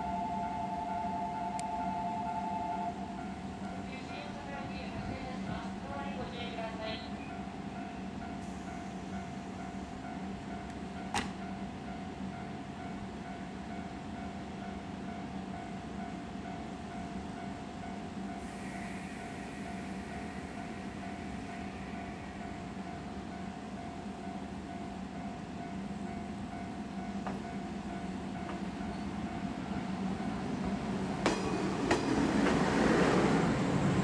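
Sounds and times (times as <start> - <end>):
train machinery humming: 0.0 - 34.0.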